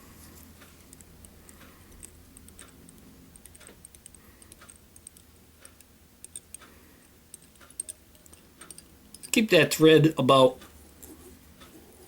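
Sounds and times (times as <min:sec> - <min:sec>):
small ticks and clicks: 0:00.6 - 0:09.4.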